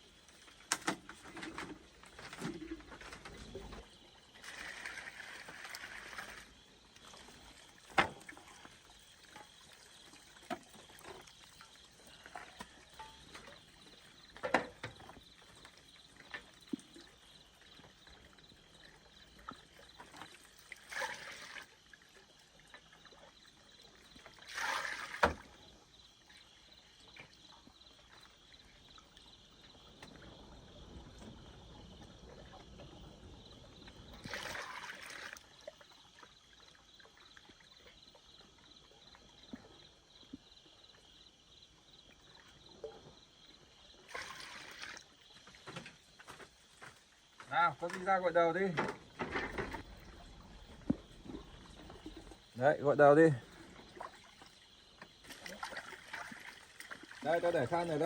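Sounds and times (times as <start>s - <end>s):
water pouring and splashing: 0.0s - 39.8s, 43.9s - 58.0s
knocks of wood or container: 7.9s - 8.3s, 14.4s - 15.1s, 48.7s - 50.0s.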